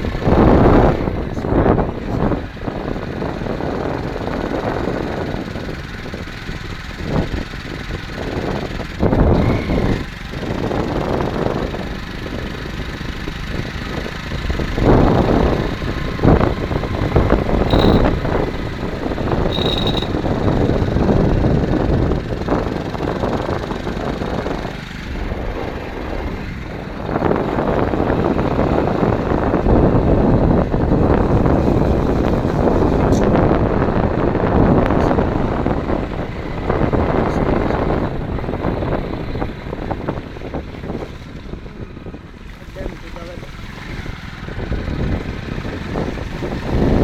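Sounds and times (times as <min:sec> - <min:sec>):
engine and road rumble: 0:00.0 - 0:47.0
wind noise on microphone: 0:00.0 - 0:47.0
short high beeps: 0:17.7 - 0:18.2, 0:19.5 - 0:20.2.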